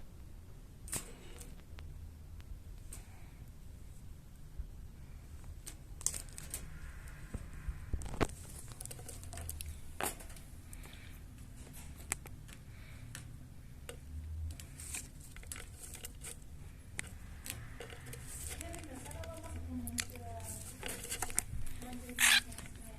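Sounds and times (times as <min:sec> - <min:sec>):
steady low hum: 0:00.0 - 0:22.9
rustling: 0:05.1 - 0:13.3, 0:13.9 - 0:22.9.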